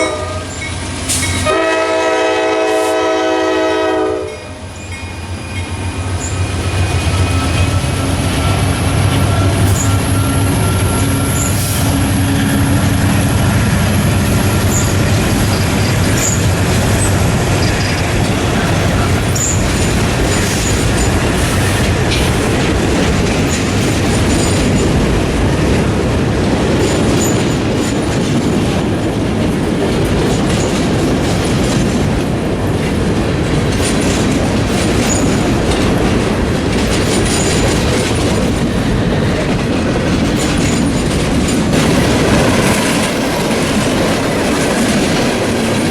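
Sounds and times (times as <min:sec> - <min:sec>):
rail-joint clicks: 0:00.0 - 0:02.0, 0:04.6 - 0:45.9
diesel locomotive engines: 0:00.0 - 0:45.9
train wheel noise: 0:00.0 - 0:45.9
high-pitched wheel squeals: 0:04.8 - 0:12.8.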